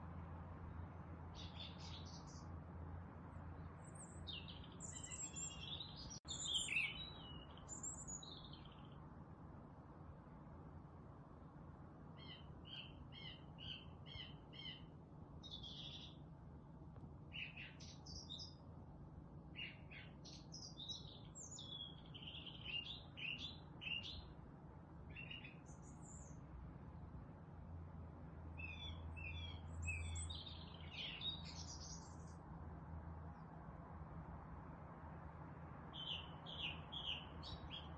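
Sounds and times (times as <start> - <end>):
songbirds chirping and singing: 3.6 - 9.0, 12.2 - 16.2, 17.4 - 18.6, 19.6 - 24.3, 25.1 - 26.4, 28.6 - 32.4, 35.9 - 37.9.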